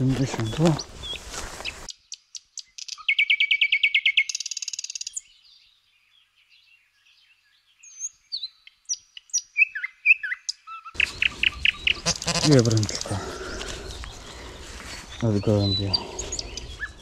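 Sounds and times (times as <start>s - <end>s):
songbirds singing: 0.0s - 17.0s.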